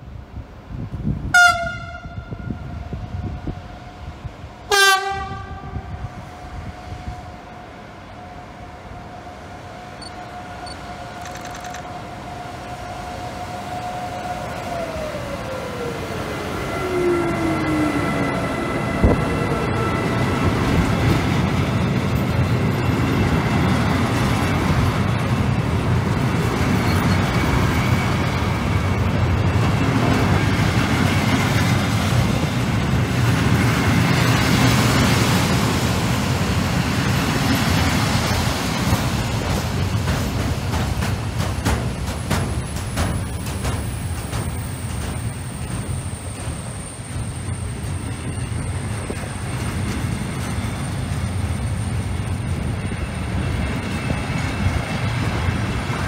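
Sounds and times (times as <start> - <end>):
electric locomotive whine: 0.0 - 56.0
freight wagons rolling on rails: 19.8 - 56.0.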